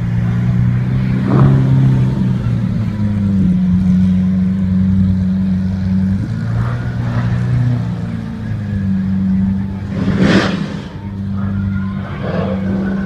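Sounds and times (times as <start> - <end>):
car engine rumbling at low revs: 0.0 - 13.0.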